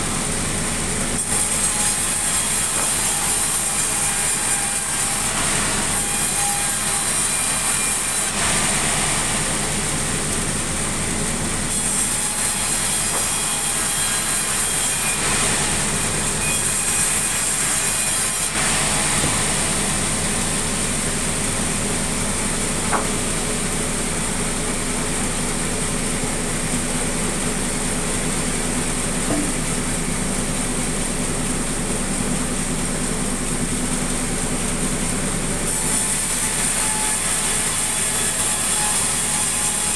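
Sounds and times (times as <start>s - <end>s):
sawmill saw cutting timber: 0.0s - 39.9s
low motor hum: 18.6s - 34.8s.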